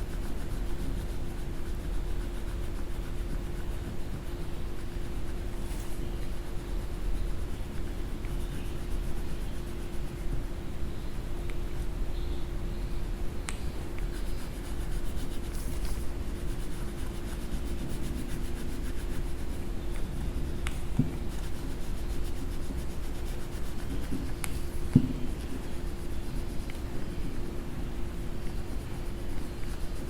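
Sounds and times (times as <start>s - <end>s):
coloring tool rubbing on paper: 0.0s - 12.3s, 13.8s - 30.0s
steady low hum: 0.0s - 30.0s.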